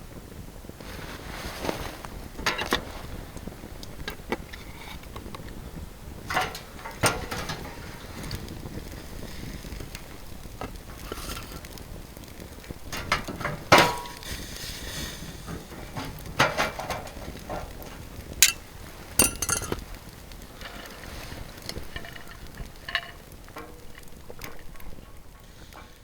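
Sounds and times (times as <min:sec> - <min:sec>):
cookware clinking and knocking: 0:06.3 - 0:08.2, 0:13.0 - 0:14.2, 0:15.9 - 0:18.6, 0:19.2 - 0:19.8, 0:21.7 - 0:24.0.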